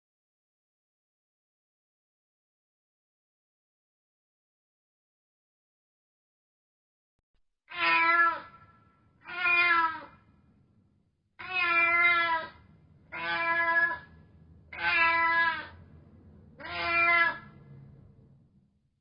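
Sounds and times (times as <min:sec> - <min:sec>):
cat meowing: 0:07.7 - 0:10.2, 0:11.4 - 0:15.8, 0:16.6 - 0:17.6.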